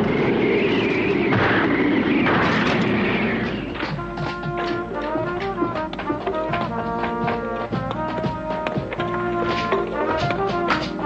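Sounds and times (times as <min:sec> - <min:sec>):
rumbling noise effect: 0:00.0 - 0:04.5.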